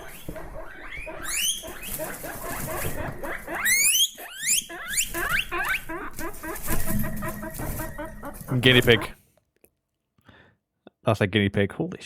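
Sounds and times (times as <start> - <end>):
guinea pig squealing: 0.0 - 9.2.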